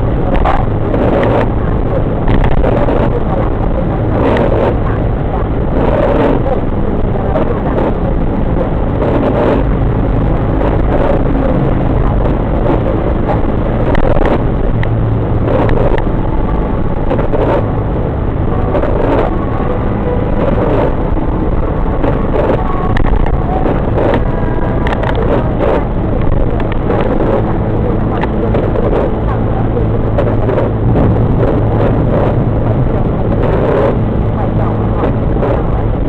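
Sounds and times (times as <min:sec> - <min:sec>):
road and engine noise: 0:00.0 - 0:36.0.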